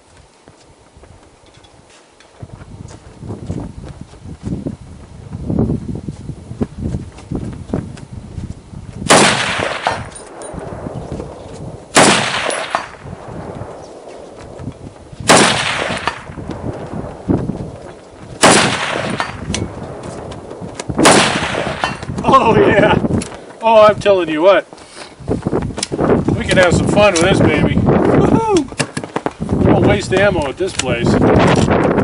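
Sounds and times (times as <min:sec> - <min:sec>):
rifle shots with echo: 0:09.1 - 0:10.9, 0:11.9 - 0:14.0, 0:15.2 - 0:16.4, 0:18.4 - 0:19.5, 0:21.0 - 0:22.0.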